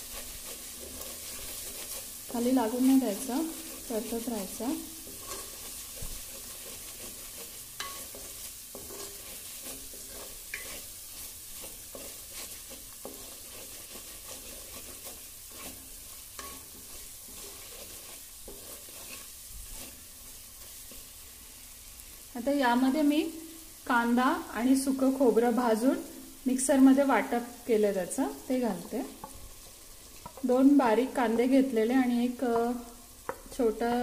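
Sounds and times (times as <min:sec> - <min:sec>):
wooden spatula scraping a pot: 0:00.0 - 0:21.4
spice paste sizzling in oil: 0:00.0 - 0:34.0.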